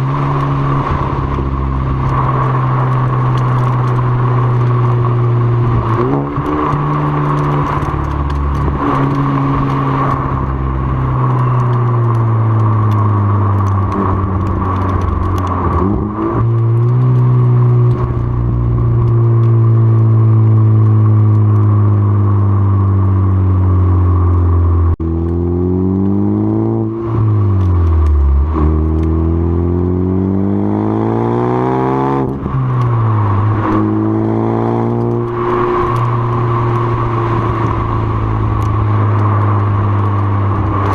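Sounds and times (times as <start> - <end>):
car engine revving loud: 0.0 - 18.0, 25.0 - 40.9.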